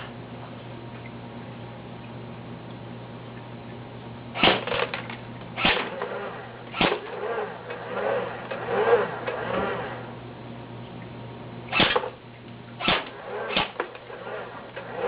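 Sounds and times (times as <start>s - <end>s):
airsoft rifle shots: 4.4s - 5.0s, 5.6s - 7.3s, 11.7s - 12.2s, 12.8s - 14.4s.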